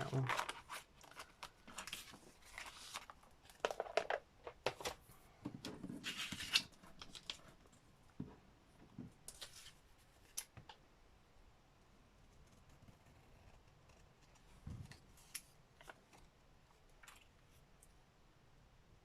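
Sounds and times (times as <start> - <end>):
paper crinkling: 0.0 - 4.1, 6.0 - 7.6.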